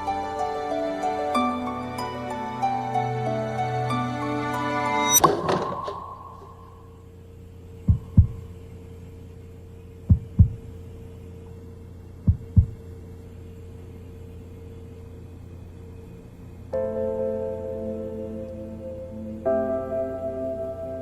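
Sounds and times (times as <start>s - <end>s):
soft tonal music: 0.0s - 8.4s
steady low drone: 0.0s - 9.1s
heartbeat thumps: 7.8s - 8.5s, 10.1s - 10.7s, 12.3s - 12.8s.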